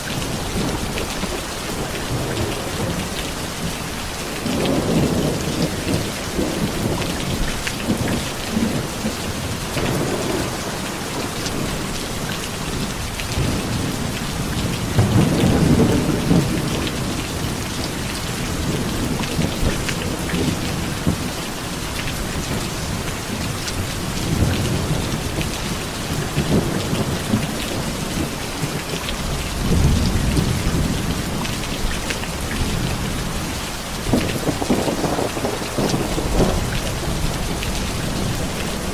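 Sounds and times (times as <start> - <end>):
heavy rain falling: 0.0 - 38.9
thunder rolling: 4.4 - 21.3, 34.1 - 38.9.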